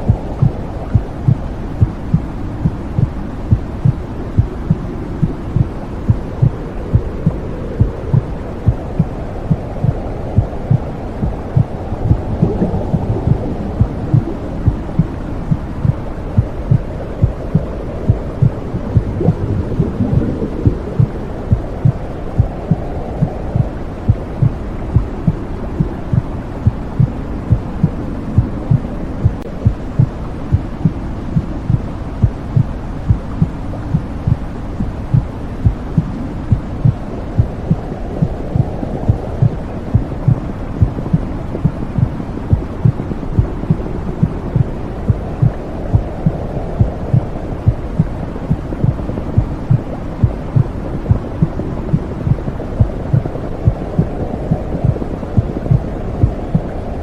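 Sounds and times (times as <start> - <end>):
muffled heartbeat thudding: 0.0 - 56.8
low rushing whoosh: 6.4 - 30.0.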